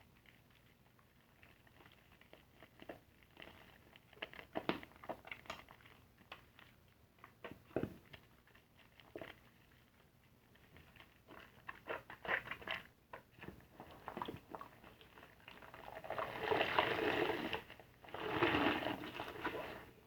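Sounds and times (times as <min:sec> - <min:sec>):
soapy sponge squishing: 0:00.1 - 0:20.0.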